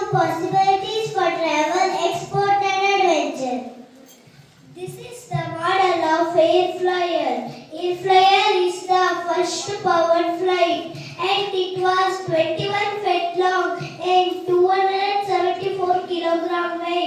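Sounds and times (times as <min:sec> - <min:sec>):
child singing: 0:04.8 - 0:17.0.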